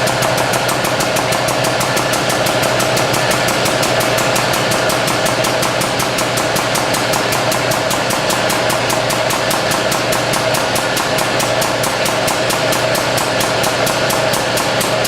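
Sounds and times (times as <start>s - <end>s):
hydraulic pump pulsing hum: 0.0s - 15.0s.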